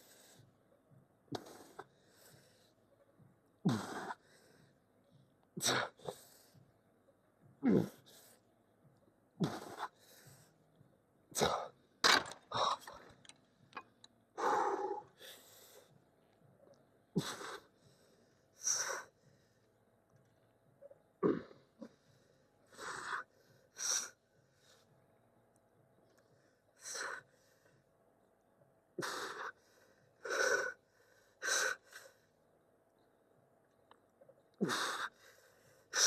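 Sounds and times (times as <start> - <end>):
man breathing hard: 14.4 - 16.0, 29.0 - 32.4.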